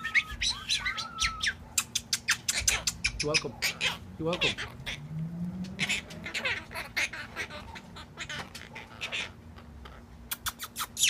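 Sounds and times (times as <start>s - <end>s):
parrots chattering and squawking: 0.0s - 11.0s.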